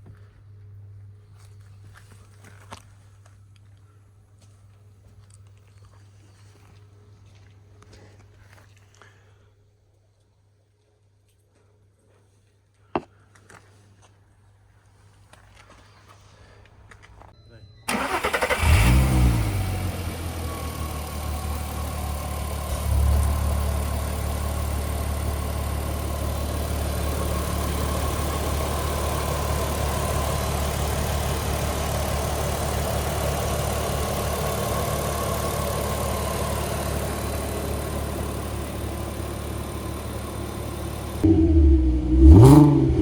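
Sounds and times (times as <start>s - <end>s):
car engine starting and idling: 17.9s - 43.0s.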